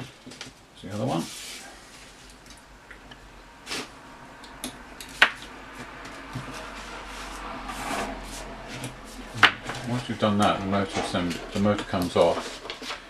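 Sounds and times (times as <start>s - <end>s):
soft rubbing: 0.9s - 2.8s, 5.5s - 13.0s.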